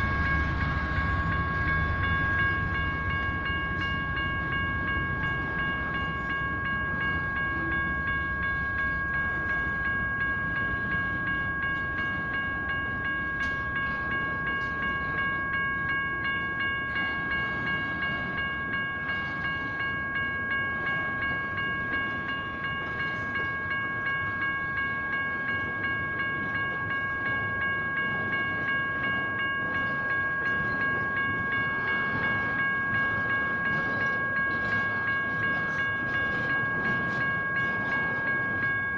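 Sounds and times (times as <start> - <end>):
crossing bell ringing: 0.0 - 38.9
train rumbling: 0.0 - 38.9.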